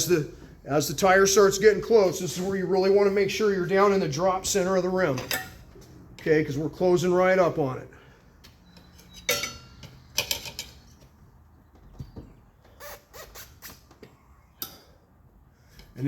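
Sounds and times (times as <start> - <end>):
tire irons clinking on wheel rim: 3.3 - 6.8, 8.4 - 12.8.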